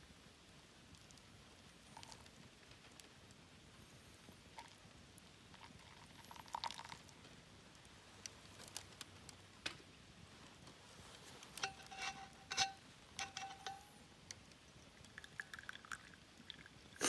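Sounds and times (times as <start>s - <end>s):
ringing clinks: 12.5s - 14.0s.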